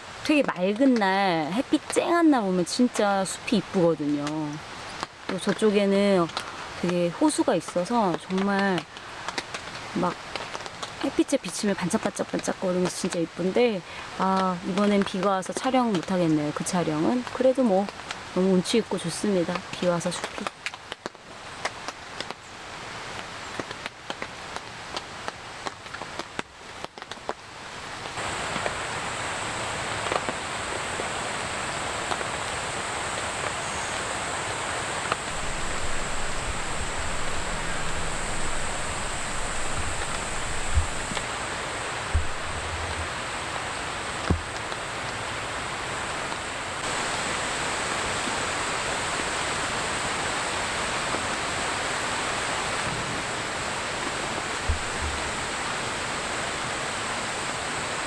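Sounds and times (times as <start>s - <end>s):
steady rain hiss: 0.0s - 58.0s
raindrops tapping: 35.0s - 45.1s, 53.3s - 56.0s.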